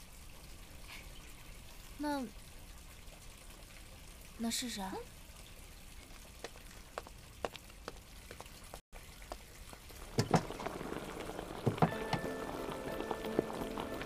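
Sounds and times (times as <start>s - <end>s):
food frying crackling: 0.0s - 14.0s
music tone: 11.8s - 14.0s.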